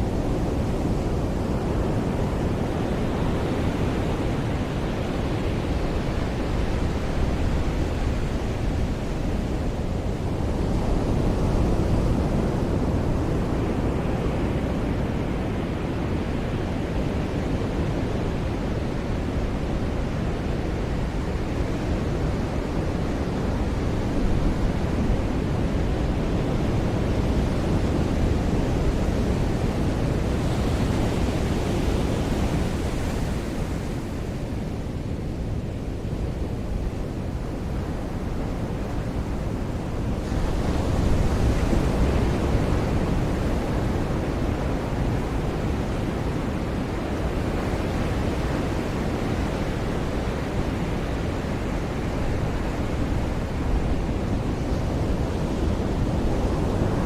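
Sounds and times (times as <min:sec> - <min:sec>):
waves breaking on beach: 0:28.2 - 0:57.0.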